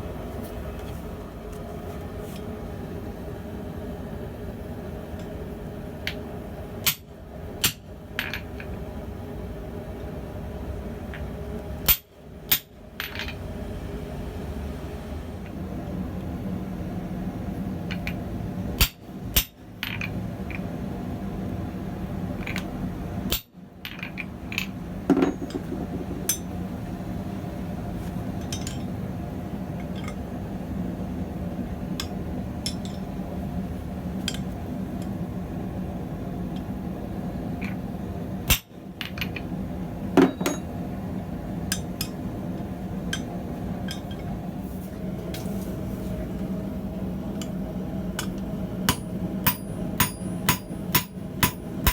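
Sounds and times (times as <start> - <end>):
gas forge burner roaring: 0.0 - 51.9
metal-on-metal strikes: 48.2 - 51.9.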